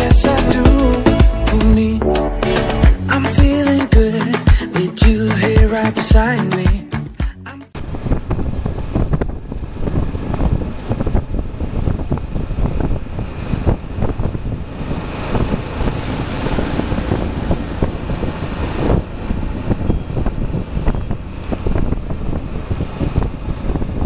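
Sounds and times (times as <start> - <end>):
vehicle rumbling on rough road: 7.7 - 24.0.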